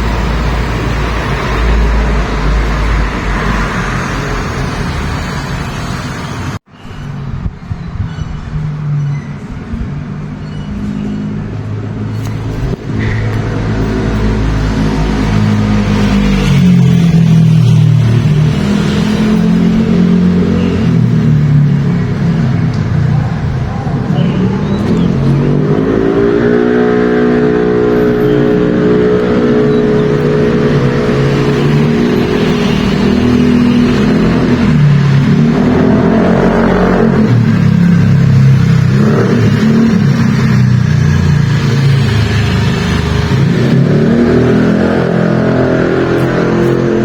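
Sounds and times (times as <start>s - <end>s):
vehicle engine revving: 10.8s - 47.0s.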